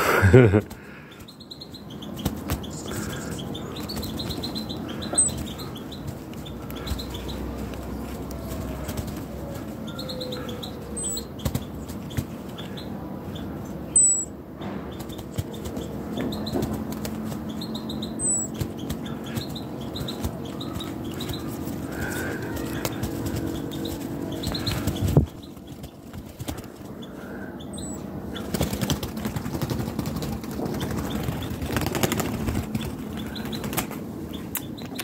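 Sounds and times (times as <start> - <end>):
birds chirping: 0.0 - 35.0
bird wings flapping: 2.0 - 12.6, 14.8 - 35.0.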